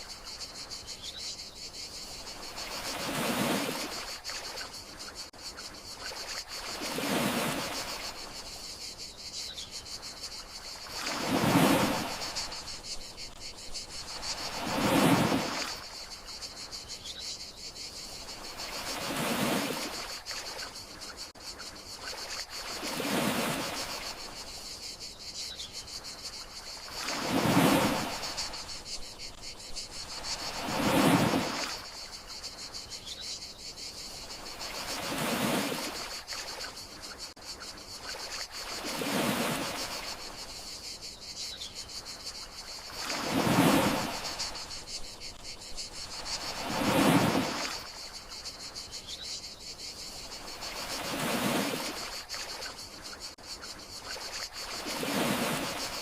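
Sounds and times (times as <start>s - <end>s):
crickets chirring: 0.0s - 56.0s
sea waves washing onto shore: 10.8s - 13.4s, 14.1s - 16.0s, 46.1s - 48.0s, 54.1s - 56.0s.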